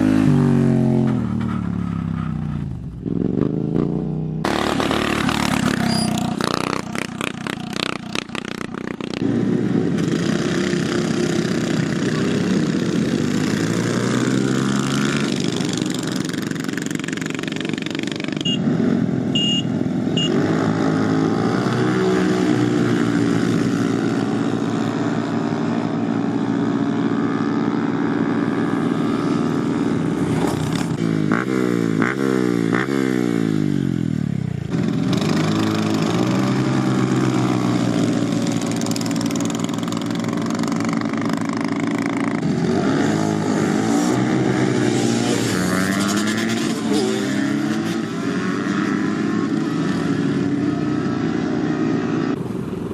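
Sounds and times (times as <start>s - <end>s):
small motorbike engine revving: 4.4s - 8.4s.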